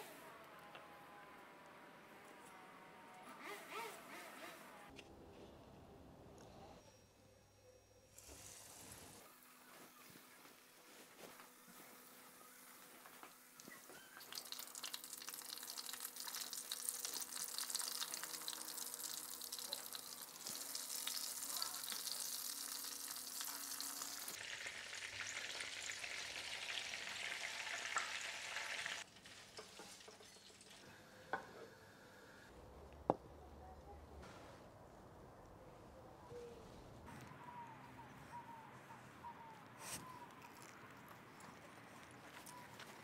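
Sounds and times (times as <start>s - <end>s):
deep-frying sizzle: 13.6s - 30.8s.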